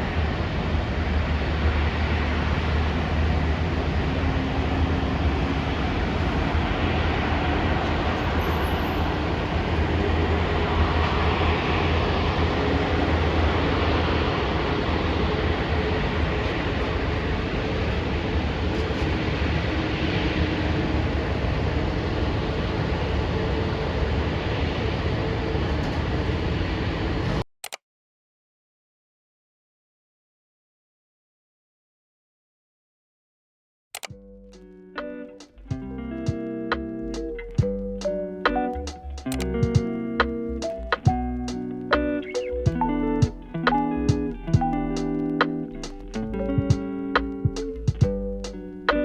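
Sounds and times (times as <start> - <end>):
vehicle rumbling in motion: 0.0 - 27.4, 34.1 - 49.0
faint steady tones: 34.1 - 49.0.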